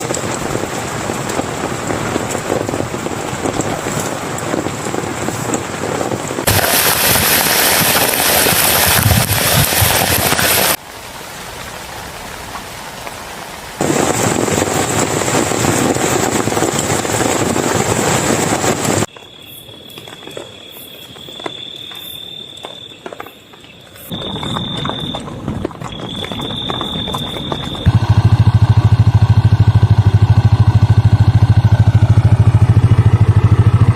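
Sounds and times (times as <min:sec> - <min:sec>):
heavy rain falling: 0:00.0 - 0:19.1
loud steady low drone: 0:27.8 - 0:33.9.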